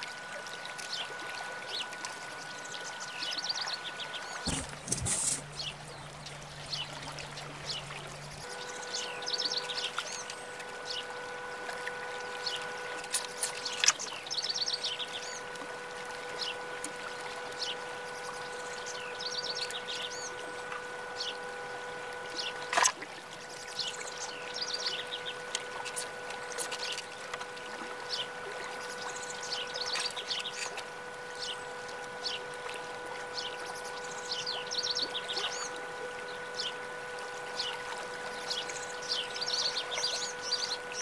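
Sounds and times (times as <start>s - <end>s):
hum of held tones: 0.0s - 41.0s.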